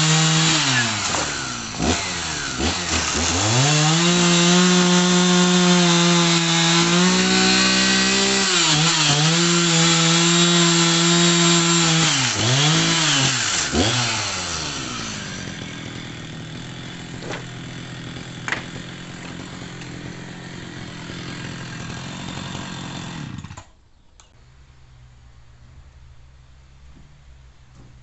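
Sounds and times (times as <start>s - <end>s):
chainsaw running: 0.0s - 23.8s
clicks: 23.6s - 24.4s.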